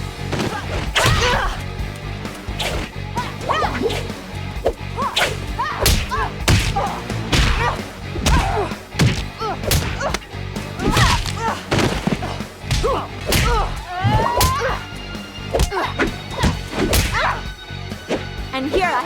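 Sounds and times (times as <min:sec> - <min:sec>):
low music underscore: 0:00.0 - 0:19.0
impact thwacks: 0:00.3 - 0:01.6, 0:02.5 - 0:04.2, 0:05.1 - 0:14.8, 0:15.5 - 0:17.4
punch and kick swishes: 0:02.3 - 0:10.2
effort grunts: 0:03.1 - 0:14.9, 0:15.5 - 0:17.5.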